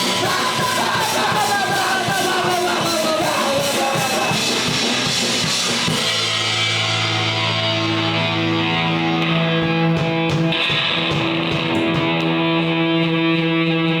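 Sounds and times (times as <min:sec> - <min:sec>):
live rock band playing: 0:00.0 - 0:14.0
guitar chord ringing: 0:05.6 - 0:14.0.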